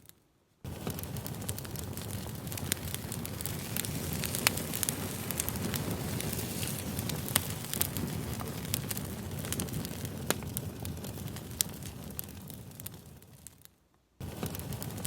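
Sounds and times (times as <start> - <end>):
wood campfire crackling: 0.0 - 15.0.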